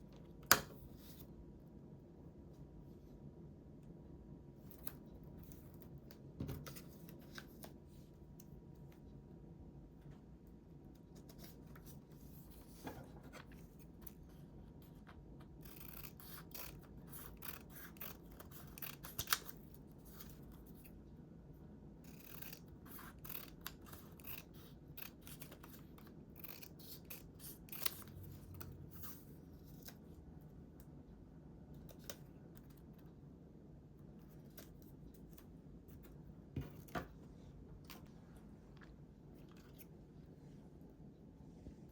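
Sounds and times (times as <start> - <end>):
scissors snipping paper: 15.4 - 20.9, 22.0 - 30.0.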